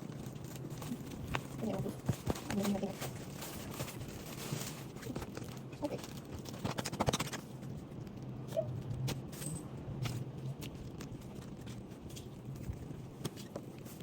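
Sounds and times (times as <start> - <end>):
packaging rustling: 0.0 - 8.2.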